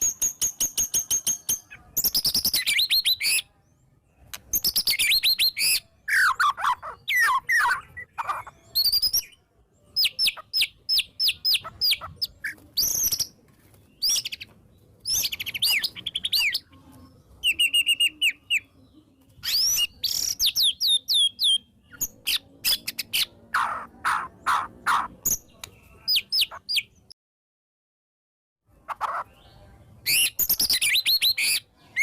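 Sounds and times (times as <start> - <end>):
bird singing whistled phrases: 4.5 - 9.4, 17.4 - 18.7, 19.4 - 23.3.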